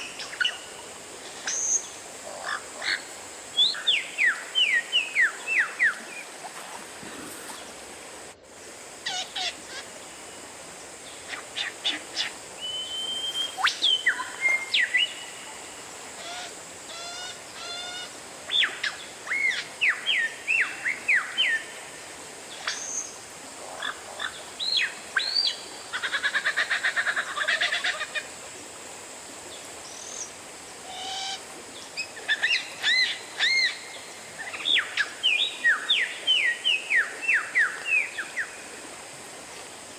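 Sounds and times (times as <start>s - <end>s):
bird singing whistled notes: 12.6s - 15.3s.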